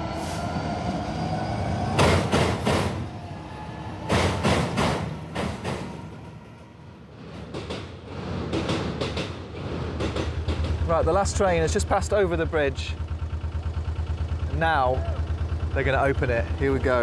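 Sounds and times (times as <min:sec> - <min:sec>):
locomotive engine note rising: 0:00.0 - 0:07.3
train wheels clattering over rail joints: 0:02.0 - 0:03.0, 0:04.1 - 0:06.1, 0:07.3 - 0:12.2.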